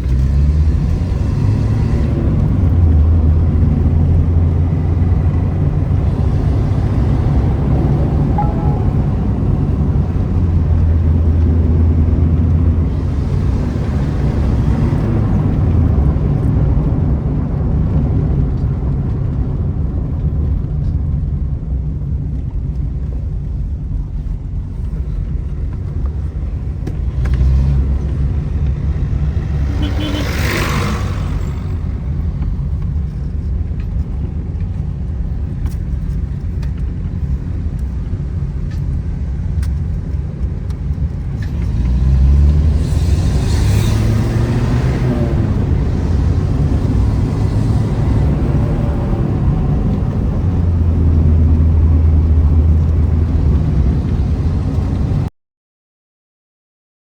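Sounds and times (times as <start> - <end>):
car exhaust rumbling: 2.5 - 20.1.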